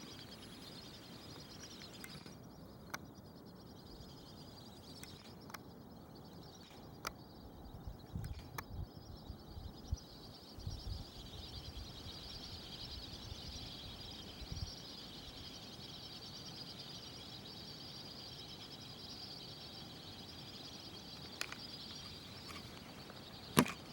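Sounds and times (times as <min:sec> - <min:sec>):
faint clicks: 0:01.6 - 0:03.1, 0:05.0 - 0:05.6.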